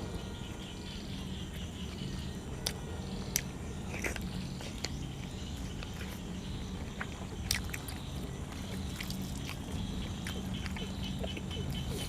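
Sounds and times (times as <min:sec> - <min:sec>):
steady low hum: 0:00.0 - 0:12.0
chewing and wet mouth clicks: 0:06.8 - 0:12.0.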